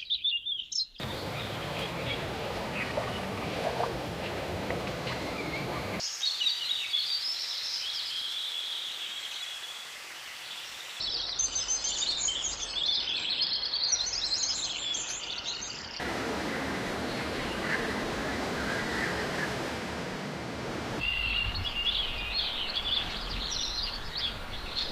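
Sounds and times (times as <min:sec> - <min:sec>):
small birds chirping: 0:00.0 - 0:09.7.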